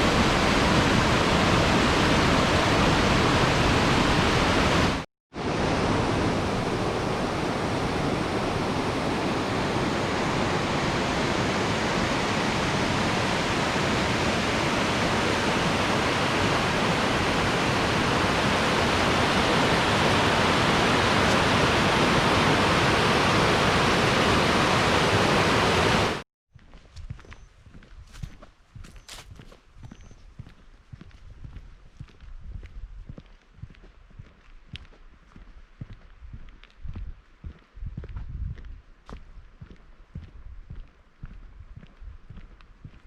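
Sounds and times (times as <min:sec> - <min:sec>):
rushing water: 0:00.0 - 0:26.2.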